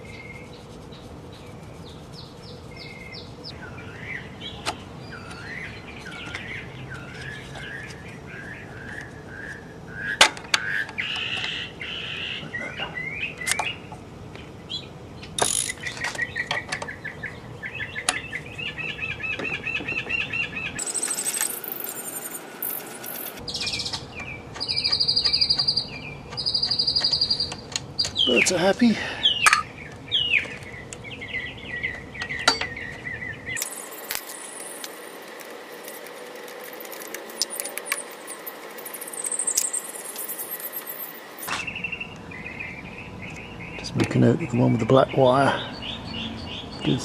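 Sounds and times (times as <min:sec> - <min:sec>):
small birds chirping: 0:00.0 - 0:47.0
metal parts clicking and knocking: 0:15.4 - 0:16.8, 0:20.8 - 0:23.4, 0:33.6 - 0:41.5.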